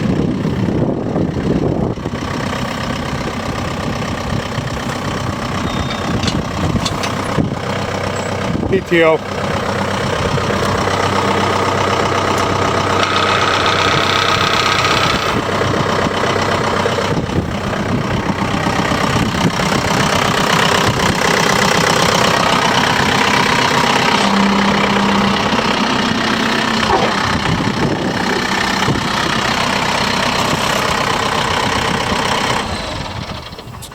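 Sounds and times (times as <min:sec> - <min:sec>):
tractor diesel engine running: 0:00.0 - 0:33.9
high whine: 0:19.7 - 0:29.8.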